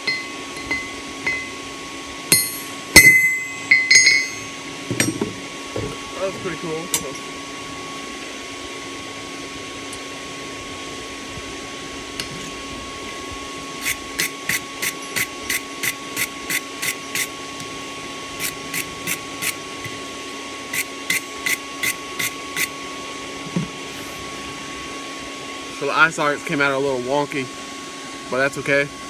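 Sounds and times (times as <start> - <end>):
hammer striking steel on anvil: 0.0 - 1.6, 2.3 - 5.3
steady machine hum: 0.0 - 29.0.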